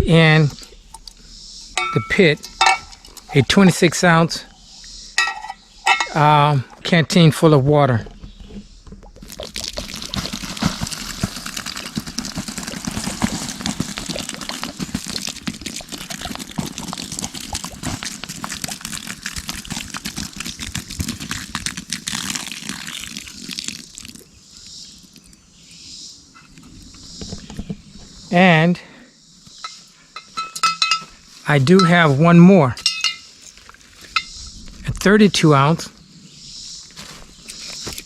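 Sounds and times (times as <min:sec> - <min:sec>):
water pouring onto fire: 0:09.2 - 0:24.3.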